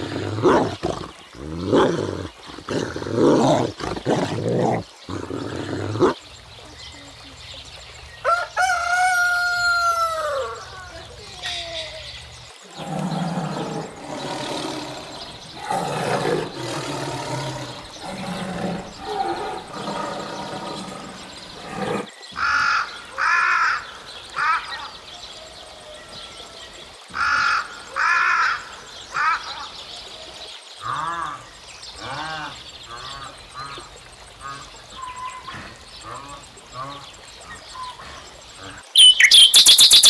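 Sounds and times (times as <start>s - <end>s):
tiger growling: 0.0s - 6.2s, 12.6s - 22.1s.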